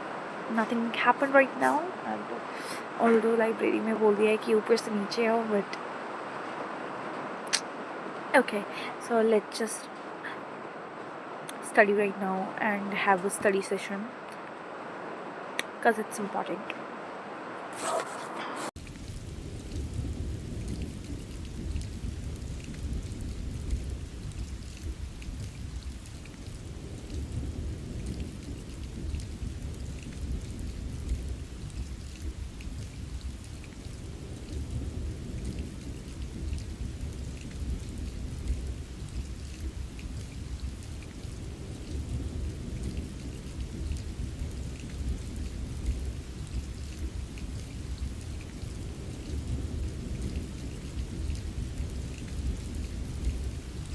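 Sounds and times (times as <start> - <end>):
heavy rain: 0.0 - 53.9
thunder rumbling: 17.8 - 53.9
raindrop ticks: 18.8 - 53.9.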